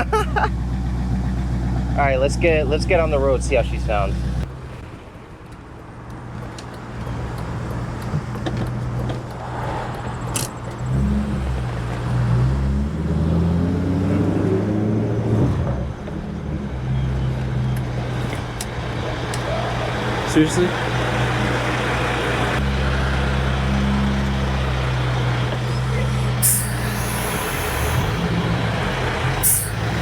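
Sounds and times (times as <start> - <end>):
car engine revving: 7.1 - 30.0.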